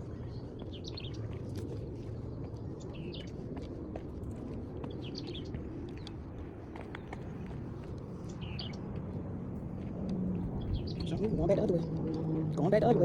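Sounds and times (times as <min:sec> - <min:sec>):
birds chirping: 0:00.0 - 0:03.6, 0:04.6 - 0:09.0, 0:10.3 - 0:13.0.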